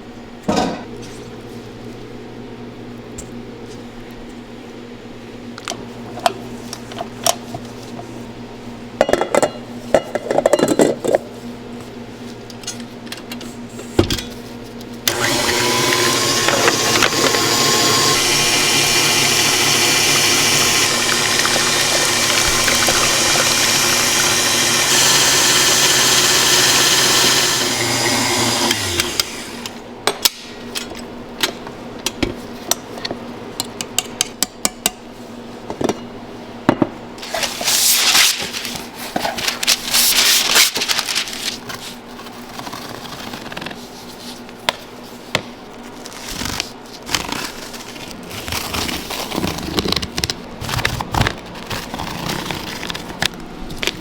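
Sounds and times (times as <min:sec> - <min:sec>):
small electric motor running: 0:15.1 - 0:29.7.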